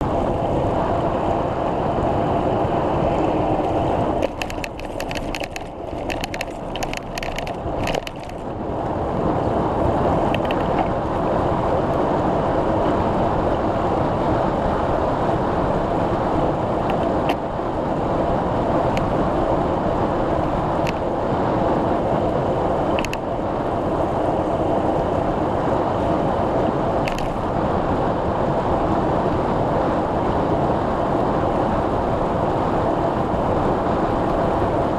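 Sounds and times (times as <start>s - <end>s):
bicycle tyre and wind noise: 0.0s - 34.9s
sharp clicks: 4.2s - 8.4s.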